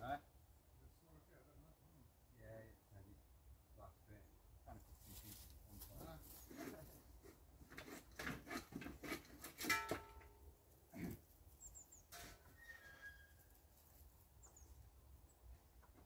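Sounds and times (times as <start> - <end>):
faint small bird chirps: 14.4 - 14.8.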